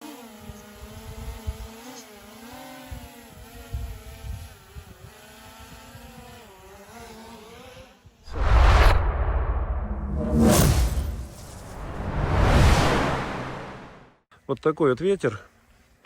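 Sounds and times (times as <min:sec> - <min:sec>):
motor running steadily: 0:00.0 - 0:07.4
loud sudden sound: 0:08.3 - 0:14.1.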